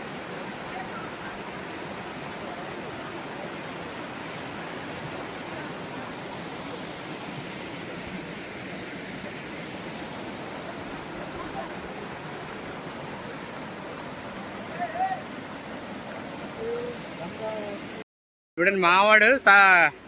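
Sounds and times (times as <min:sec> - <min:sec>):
water rushing over rock: 0:00.0 - 0:18.0.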